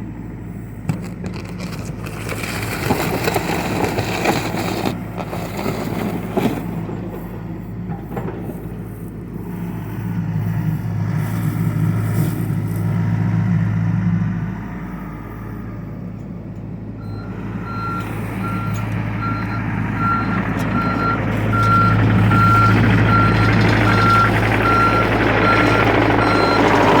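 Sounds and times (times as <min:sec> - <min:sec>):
excavator diesel engine running: 0:00.0 - 0:27.0
travel alarm beeping: 0:17.0 - 0:27.0.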